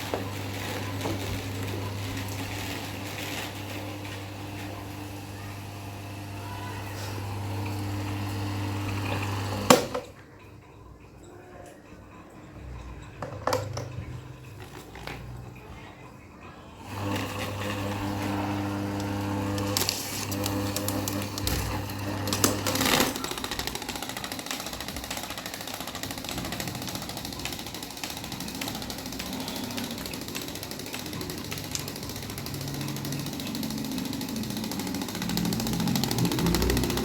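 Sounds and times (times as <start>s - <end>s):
electric fan motor hum: 0.0s - 10.1s, 16.4s - 37.0s
fan blades rattling: 16.8s - 37.0s.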